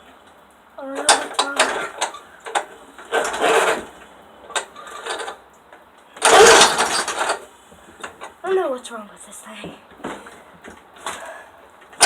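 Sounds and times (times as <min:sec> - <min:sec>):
recoil starter rope whirring: 0:01.0 - 0:05.4, 0:06.2 - 0:08.2.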